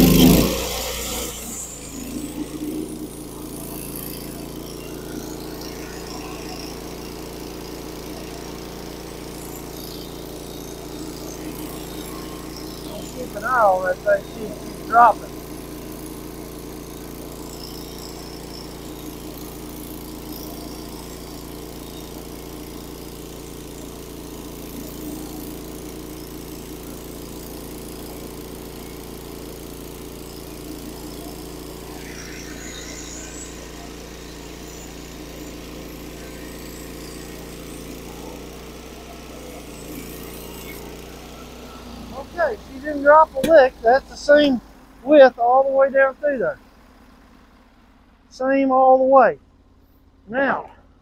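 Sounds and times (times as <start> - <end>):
band saw blade cutting wood: 0.0 - 6.7
sawmill engine running: 0.0 - 51.0.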